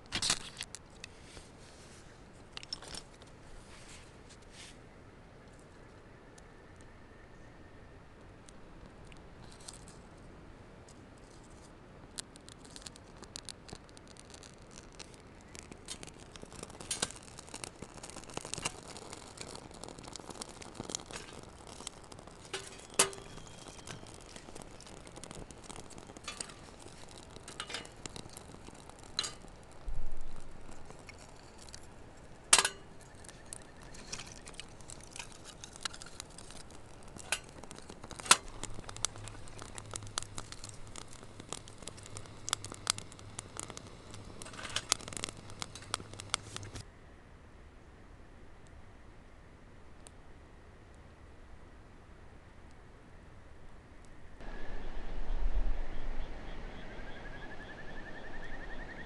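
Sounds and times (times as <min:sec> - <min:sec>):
wood fire crackling: 0:00.0 - 0:04.5, 0:08.4 - 0:46.9.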